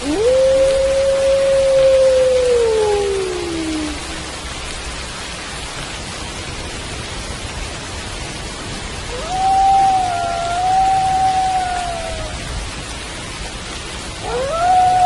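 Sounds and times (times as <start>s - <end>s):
wolf howling: 0.0s - 4.3s, 9.1s - 12.6s, 14.2s - 15.0s
steady rain: 0.0s - 15.0s.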